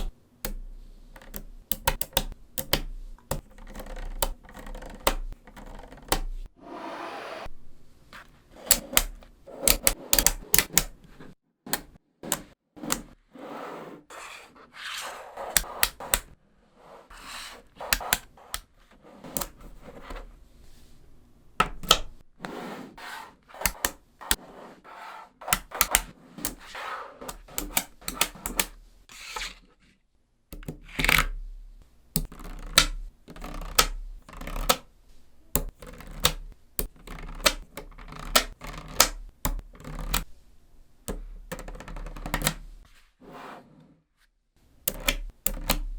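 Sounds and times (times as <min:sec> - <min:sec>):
magnetic balls clicking together: 0:00.0 - 0:06.5, 0:08.7 - 0:11.0, 0:32.1 - 0:34.9, 0:35.5 - 0:40.3, 0:44.9 - 0:45.9
magnetic balls rolling and rubbing: 0:00.0 - 0:29.8, 0:30.6 - 0:43.4.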